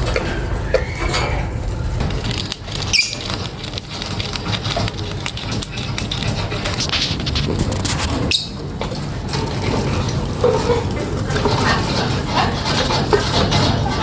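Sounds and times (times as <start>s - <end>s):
lovebirds chirping: 2.9s - 3.3s.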